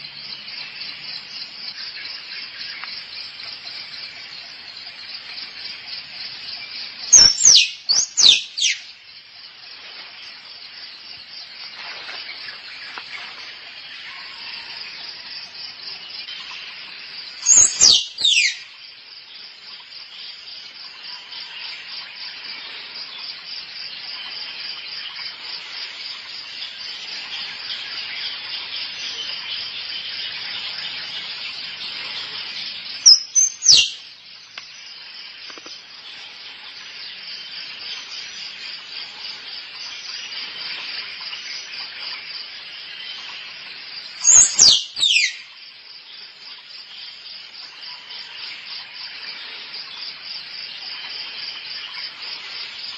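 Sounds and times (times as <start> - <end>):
fast-pulsing insect chorus: 0.0 - 52.9
squirrel calling: 7.1 - 8.8, 17.4 - 18.7, 33.0 - 34.0, 44.2 - 45.5.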